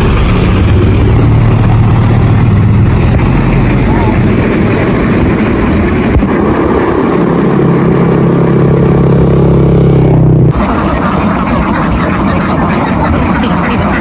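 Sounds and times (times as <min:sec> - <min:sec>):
motor engine humming: 0:00.0 - 0:14.0.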